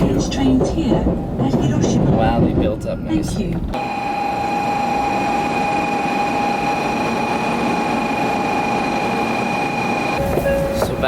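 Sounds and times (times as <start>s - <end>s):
high-speed train rushing: 0.0s - 11.0s
high-pitched train whine: 3.8s - 11.0s.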